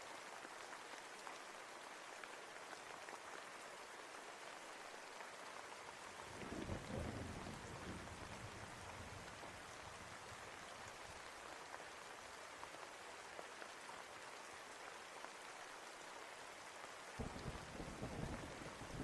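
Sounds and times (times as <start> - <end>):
steady rain: 0.0 - 19.0
low rumble of thunder: 6.3 - 9.6, 17.2 - 19.0.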